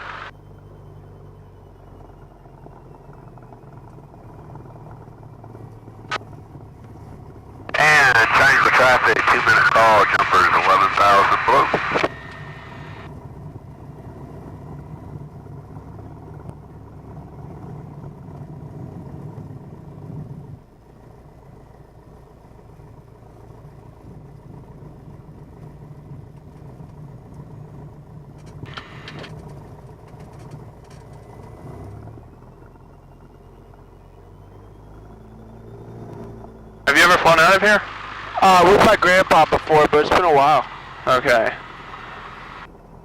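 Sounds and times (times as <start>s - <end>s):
aircraft engine running steadily: 0.0s - 43.0s.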